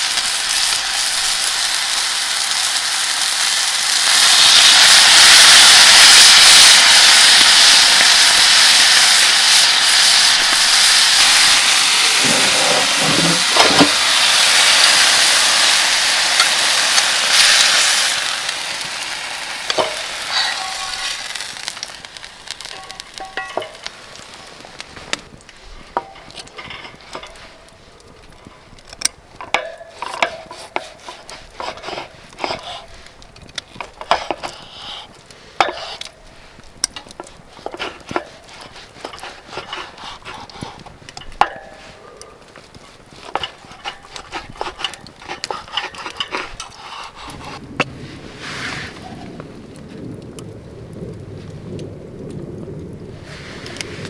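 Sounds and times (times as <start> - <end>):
food sizzling in a pan: 0.0 - 25.1.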